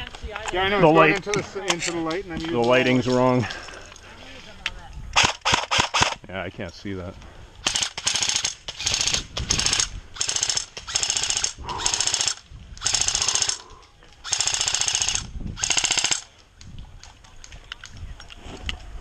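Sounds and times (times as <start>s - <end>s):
airsoft rifle firing bursts: 5.2s - 6.2s, 7.6s - 13.6s, 14.2s - 16.3s.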